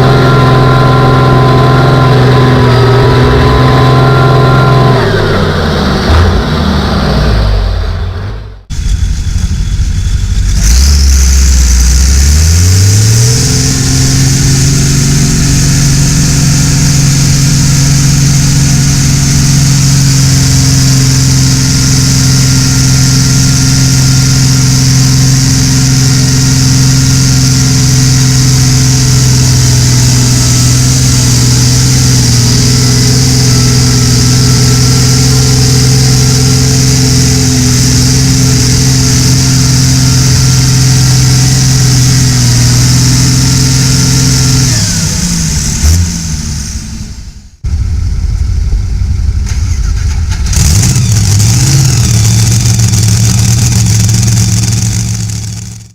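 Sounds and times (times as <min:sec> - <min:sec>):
tractor engine revving: 0:00.0 - 0:55.9.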